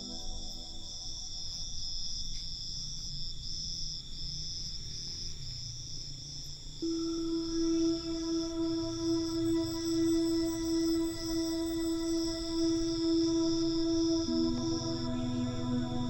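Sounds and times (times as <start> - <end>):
soft ambient music: 0.0 - 2.1, 6.8 - 16.0
crickets chirping: 0.0 - 16.0
held synth note: 6.8 - 16.0.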